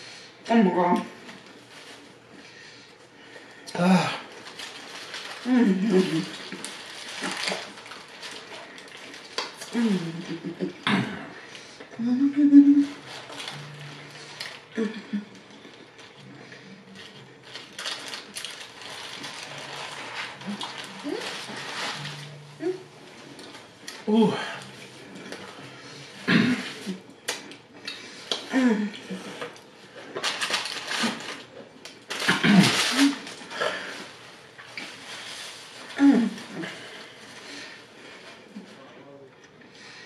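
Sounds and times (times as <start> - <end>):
paper wrapper being handled: 4.2 - 10.6, 12.8 - 14.8, 17.0 - 22.5, 30.1 - 37.3
person humming mm: 9.6 - 15.4, 20.4 - 23.0
hum-like mouth sounds: 9.6 - 17.2, 19.6 - 29.5.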